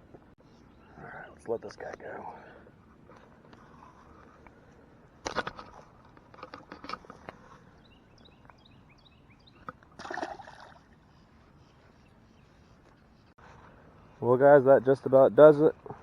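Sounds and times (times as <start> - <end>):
small bird chirping: 7.8 - 9.7
fish splashing in water: 10.0 - 10.9.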